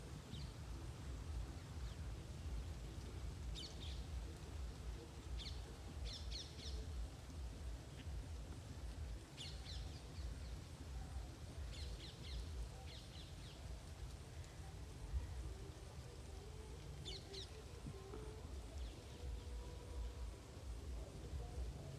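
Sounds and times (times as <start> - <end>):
steady low rumble: 0.0 - 21.9
small birds chirping: 0.2 - 15.3.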